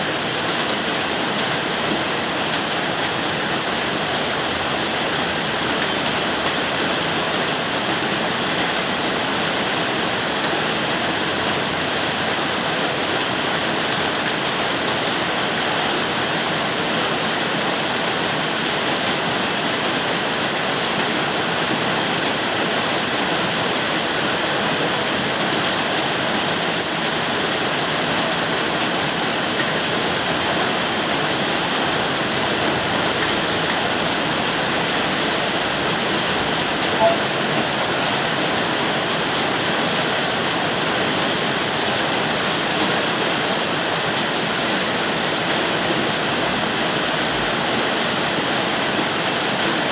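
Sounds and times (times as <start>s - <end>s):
steady rainfall: 0.0s - 49.9s.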